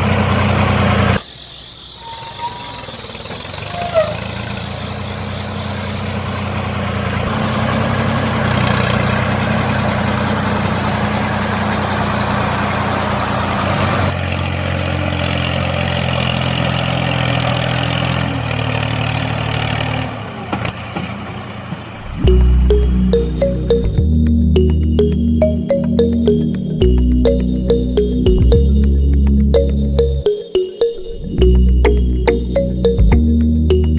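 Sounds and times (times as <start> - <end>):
engine humming: 21.4 - 33.9.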